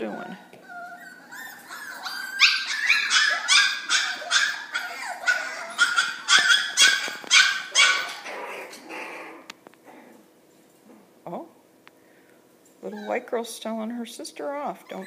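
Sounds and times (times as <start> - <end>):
puppies yapping: 0.0 - 9.5, 14.8 - 15.0.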